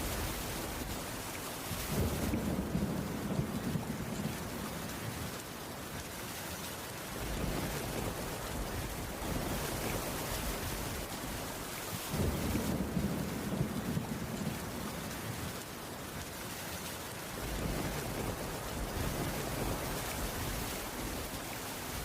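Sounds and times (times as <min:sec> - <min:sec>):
heavy rain hissing: 0:00.0 - 0:22.0.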